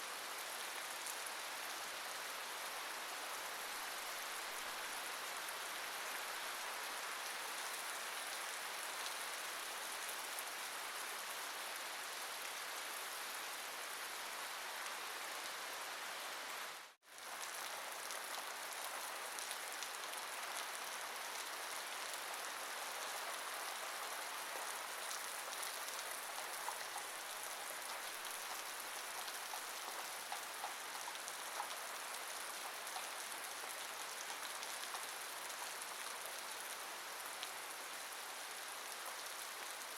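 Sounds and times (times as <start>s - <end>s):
steady rain falling: 0.0s - 39.9s
rain drop ticks: 29.2s - 31.8s.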